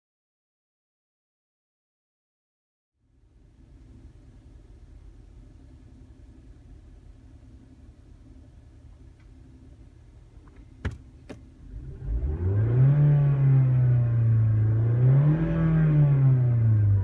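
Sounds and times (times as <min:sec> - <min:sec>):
car engine revving up: 0:11.6 - 0:17.0.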